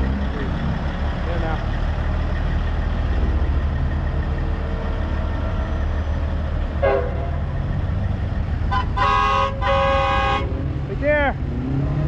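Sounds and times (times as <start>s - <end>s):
diesel truck engine rumbling: 0.0s - 12.0s
horn toot: 8.7s - 10.6s.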